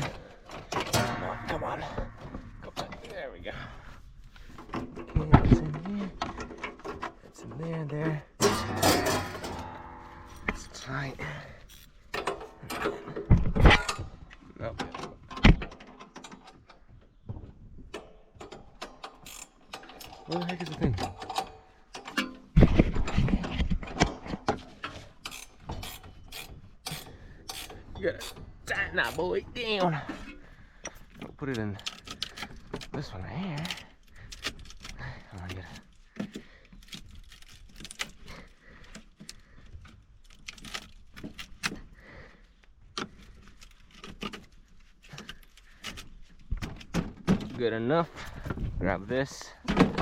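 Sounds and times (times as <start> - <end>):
metal tools clinking: 0.0 - 3.2, 8.4 - 14.1.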